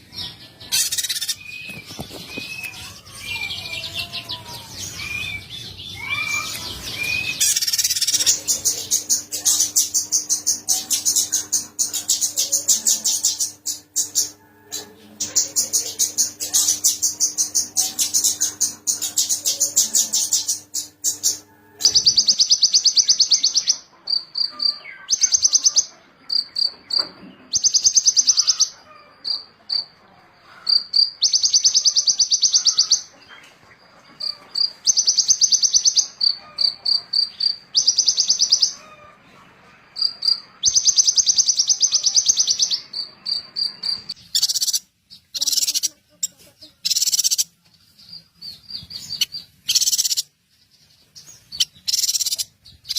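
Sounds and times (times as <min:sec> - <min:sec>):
songbird high-pitched trill: 0:00.7 - 0:14.3, 0:15.4 - 0:29.9, 0:30.8 - 0:33.0, 0:34.2 - 0:38.8, 0:40.0 - 0:46.0, 0:46.8 - 0:47.5, 0:48.5 - 0:50.3, 0:51.4 - 0:52.9
sharp clipped bird calls: 0:51.5 - 0:52.9.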